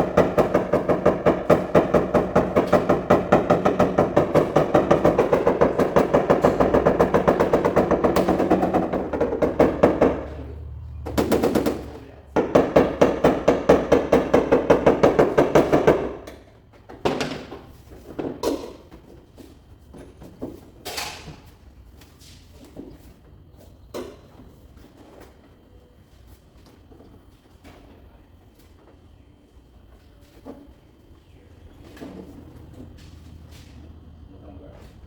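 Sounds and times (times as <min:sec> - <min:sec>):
rapid tapping on car hood: 0:00.0 - 0:10.3, 0:11.1 - 0:16.3.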